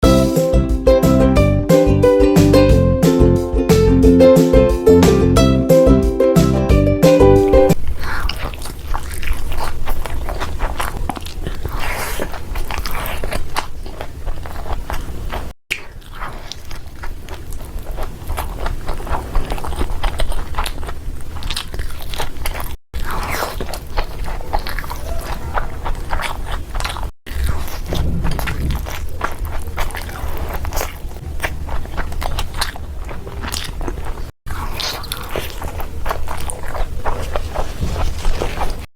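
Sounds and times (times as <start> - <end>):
biting crunching and chewing: 7.7 - 38.9.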